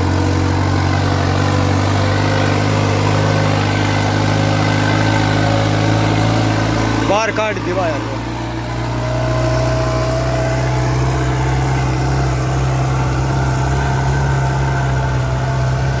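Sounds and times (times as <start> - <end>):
tractor diesel engine running: 0.0 - 16.0
thin whine: 0.9 - 8.2.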